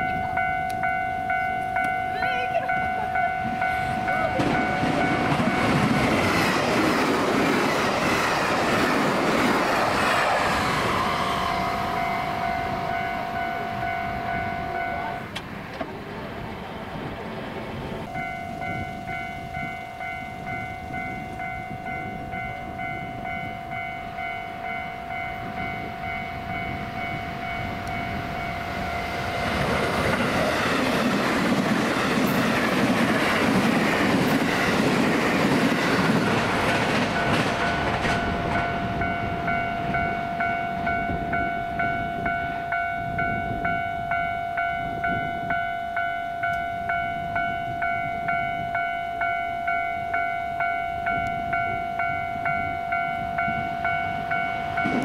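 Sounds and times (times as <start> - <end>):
level crossing alarm dinging: 0.0 - 6.3, 10.8 - 15.4, 18.1 - 29.6, 36.7 - 55.0
electric train passing: 0.0 - 55.0.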